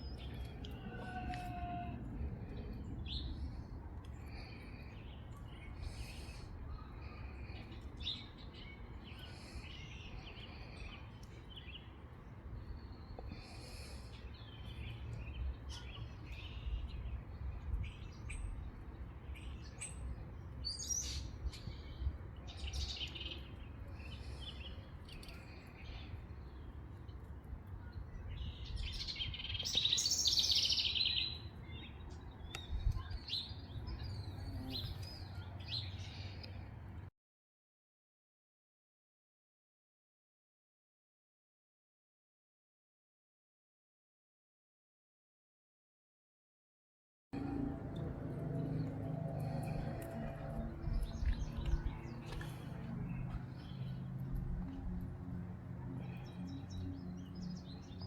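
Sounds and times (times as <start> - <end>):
songbirds chirping and singing: 0.0 - 36.8, 47.4 - 58.0
low steady rumble: 47.4 - 55.6.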